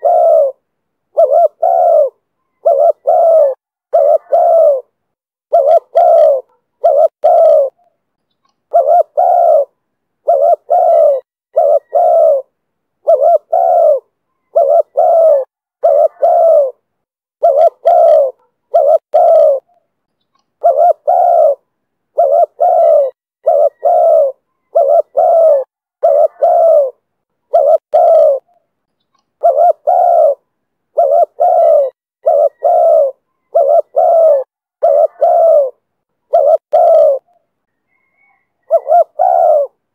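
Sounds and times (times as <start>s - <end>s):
dove cooing: 0.0s - 7.9s, 8.7s - 19.8s, 20.6s - 28.6s, 29.4s - 39.9s.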